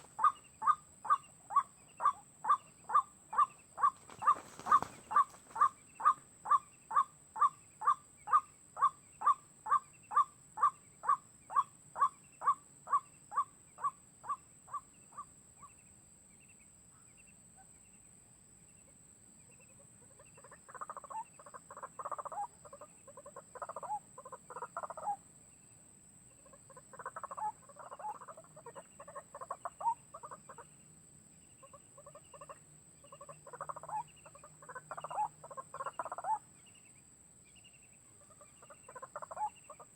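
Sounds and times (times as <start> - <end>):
rough chattering bird calls: 0.0 - 8.4.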